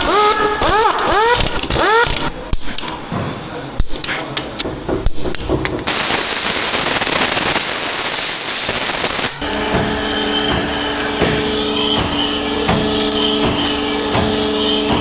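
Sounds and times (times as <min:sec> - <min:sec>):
steady rushing noise: 0:05.9 - 0:09.4.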